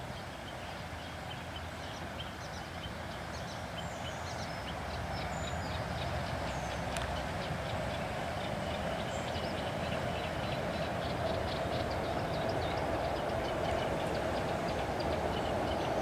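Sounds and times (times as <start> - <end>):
distant train on bridge: 4.6 - 16.0.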